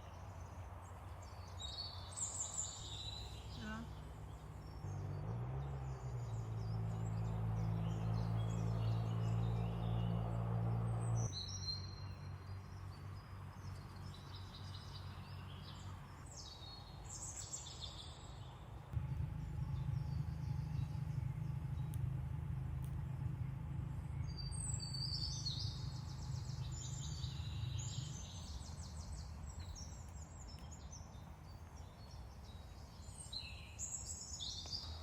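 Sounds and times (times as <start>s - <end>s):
songbirds chirping: 0.0s - 35.0s
steady low rumble: 18.9s - 30.7s.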